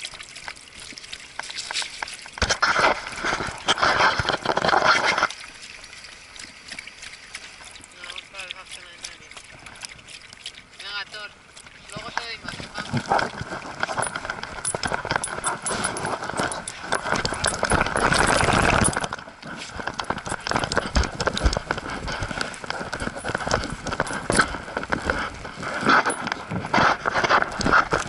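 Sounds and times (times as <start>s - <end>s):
footsteps walking: 12.6s - 28.0s.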